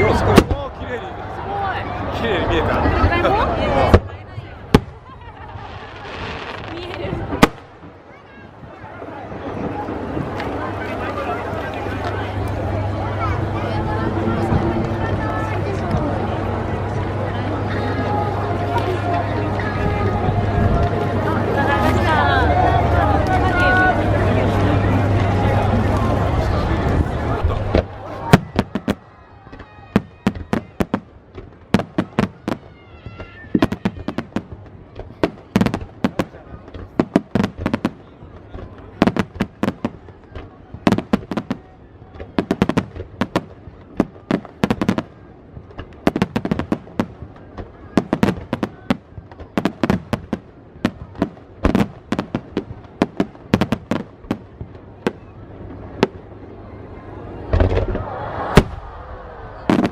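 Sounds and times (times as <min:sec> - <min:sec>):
fireworks bursting: 0:03.8 - 0:08.1, 0:27.4 - 0:56.3, 0:57.4 - 0:59.9
deep heavy firework boom: 0:57.5 - 0:59.9.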